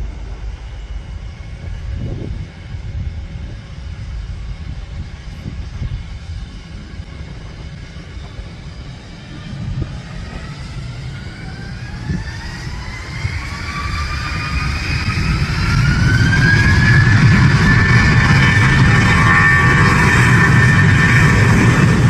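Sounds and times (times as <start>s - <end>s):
aircraft engines rumbling and whining: 0.0s - 22.0s.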